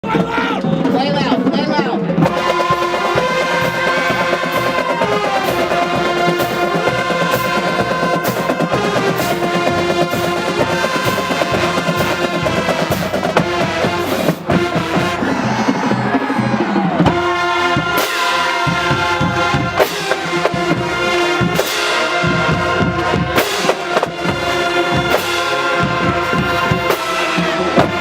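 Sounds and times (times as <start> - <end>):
brass playing: 2.2 - 28.0
drum hits: 2.2 - 28.0.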